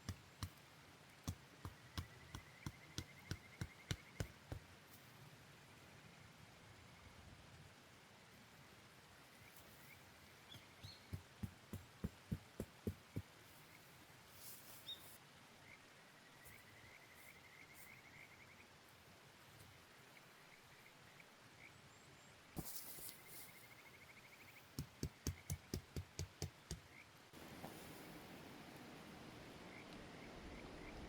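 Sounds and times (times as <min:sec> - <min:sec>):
faint stream rushing: 0:27.3 - 0:31.0.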